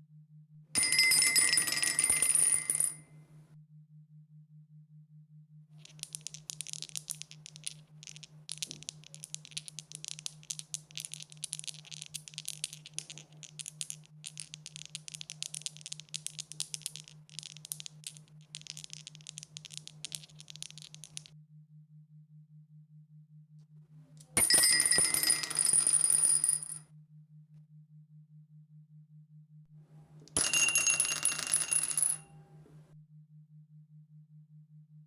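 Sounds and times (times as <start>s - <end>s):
dice rattling and clattering: 5.8s - 21.3s, 30.3s - 32.3s.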